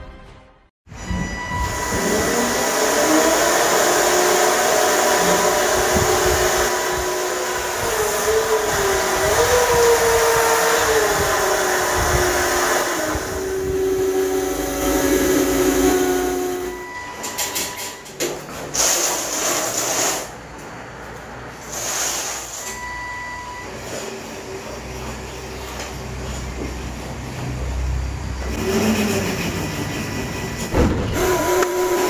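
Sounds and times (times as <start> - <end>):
small engine running: 28.4 - 32.0.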